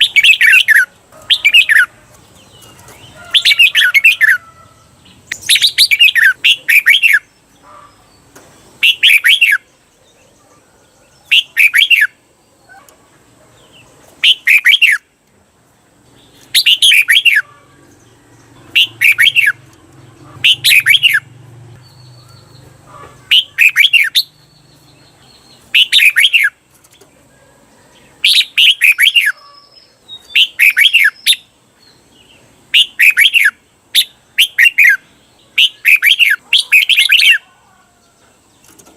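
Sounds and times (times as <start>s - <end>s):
bulbul singing bubbly phrases: 5.3s - 7.3s, 18.7s - 19.7s.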